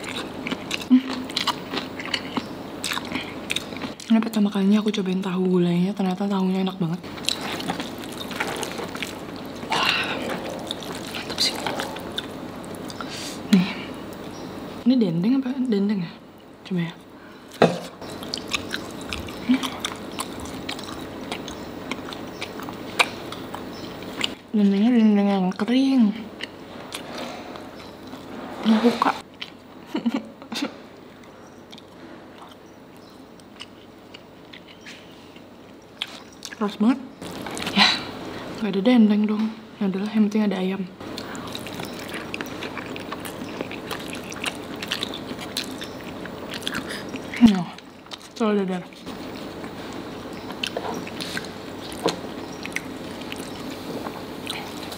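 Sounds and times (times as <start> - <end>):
crunchy biting and chewing: 0.0 - 4.0, 7.1 - 13.4, 18.0 - 24.4, 37.2 - 37.8, 41.0 - 48.4, 49.0 - 54.9.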